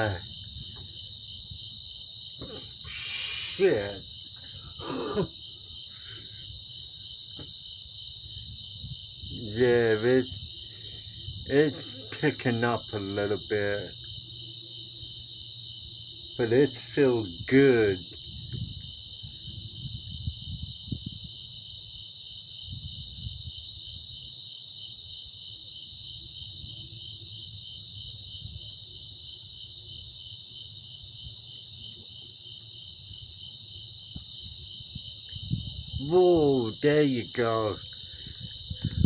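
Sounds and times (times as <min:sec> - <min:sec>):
wind rumbling on microphone: 0:00.0 - 0:04.2, 0:06.3 - 0:12.2, 0:17.3 - 0:24.3, 0:27.9 - 0:29.0, 0:33.1 - 0:36.9, 0:37.7 - 0:39.0
night insects trilling: 0:00.0 - 0:39.0.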